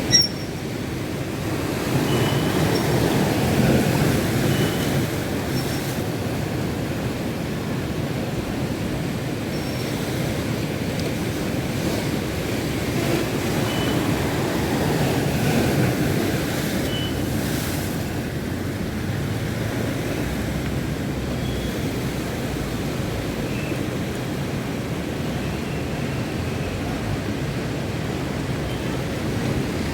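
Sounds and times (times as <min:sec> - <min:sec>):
surf rolling in: 0:00.0 - 0:23.4.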